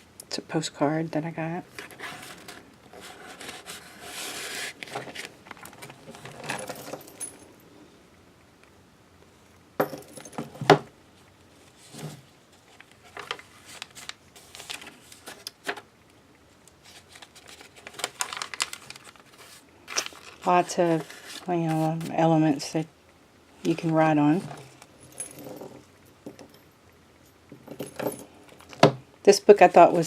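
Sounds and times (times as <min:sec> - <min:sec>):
paper rustling: 0:01.8 - 0:06.4, 0:11.8 - 0:15.8, 0:16.8 - 0:22.2.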